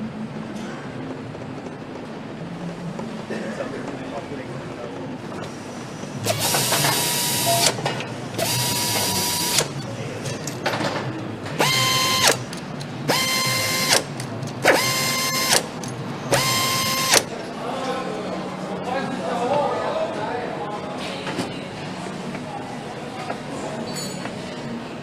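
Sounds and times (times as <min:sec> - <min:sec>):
power tool whining: 0:06.2 - 0:07.8, 0:08.4 - 0:09.7, 0:11.6 - 0:12.5, 0:13.1 - 0:15.7, 0:16.3 - 0:17.3.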